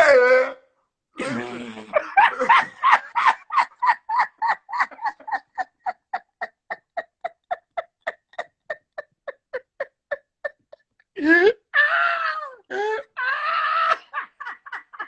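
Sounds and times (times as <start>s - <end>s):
man laughing hard: 1.9s - 10.8s, 13.2s - 15.0s.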